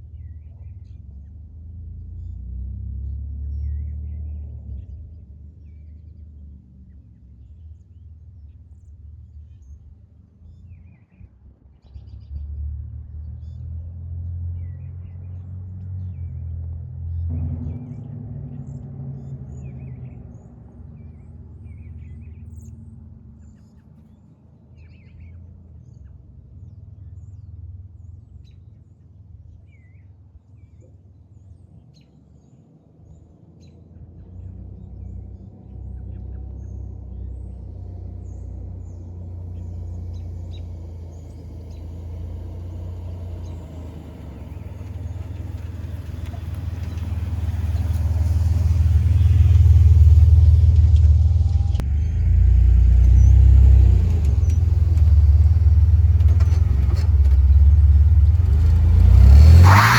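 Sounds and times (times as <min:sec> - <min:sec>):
birds chirping: 0:33.6 - 0:59.9
pickup engine rumbling: 0:35.1 - 0:59.9.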